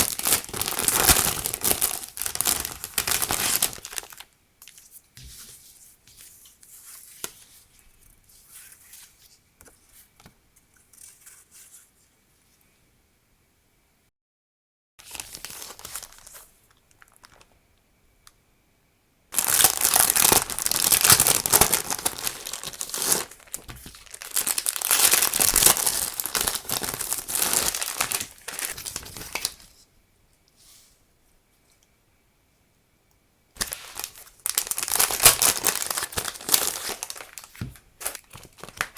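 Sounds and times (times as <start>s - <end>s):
wrapping crinkling: 0.0s - 11.9s, 15.0s - 17.6s, 19.3s - 29.8s, 33.6s - 38.9s.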